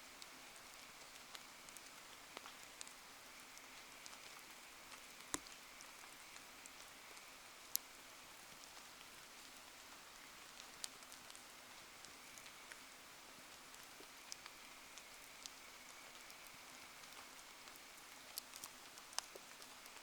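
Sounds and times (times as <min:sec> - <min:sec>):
light rain falling: 0:00.0 - 0:20.0.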